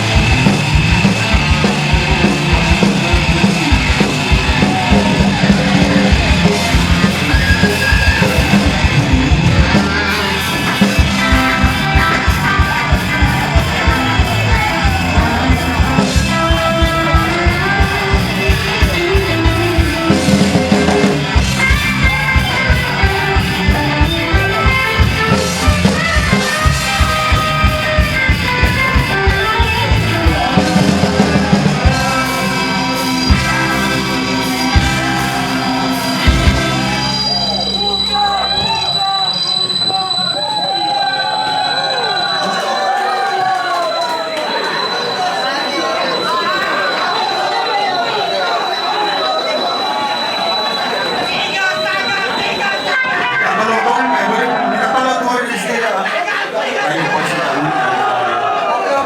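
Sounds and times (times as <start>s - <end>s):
driving drum beat: 0.0s - 39.4s
electric guitar: 0.0s - 39.6s
punk rock band playing: 0.0s - 43.1s.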